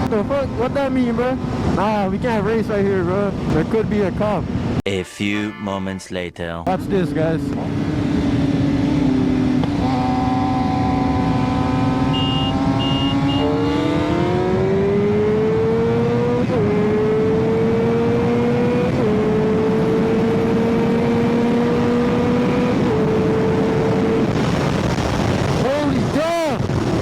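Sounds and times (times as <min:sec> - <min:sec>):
short high beeps: 0:04.9 - 0:06.1, 0:12.1 - 0:13.8
motorcycle engine accelerating: 0:06.7 - 0:25.6.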